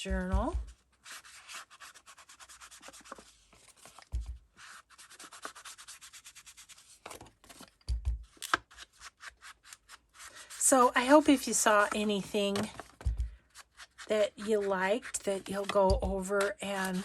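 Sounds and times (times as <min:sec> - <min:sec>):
soft low thumps: 0:00.0 - 0:00.8, 0:07.9 - 0:08.3, 0:13.0 - 0:13.4, 0:15.9 - 0:16.2
rubbing on paper: 0:00.6 - 0:07.2, 0:08.7 - 0:12.8, 0:13.4 - 0:17.0.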